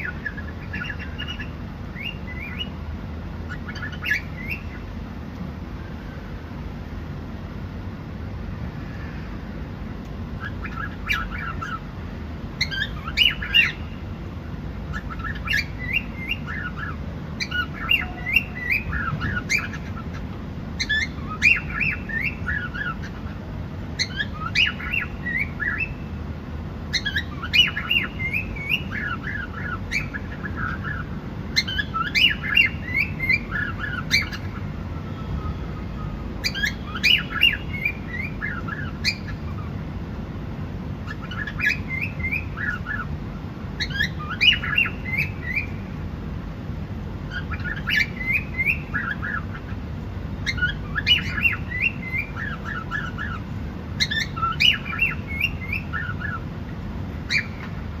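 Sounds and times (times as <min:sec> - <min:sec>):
cockatiel chirping: 0:00.0 - 0:02.8, 0:03.5 - 0:04.8, 0:10.4 - 0:11.8, 0:12.6 - 0:14.0, 0:14.9 - 0:20.2, 0:20.8 - 0:23.4, 0:24.0 - 0:26.1, 0:26.9 - 0:34.7, 0:36.0 - 0:39.8, 0:41.0 - 0:43.1, 0:43.8 - 0:45.8, 0:47.3 - 0:49.8, 0:50.4 - 0:53.4, 0:54.0 - 0:56.4, 0:57.3 - 0:58.0
low background noise: 0:00.0 - 0:58.0.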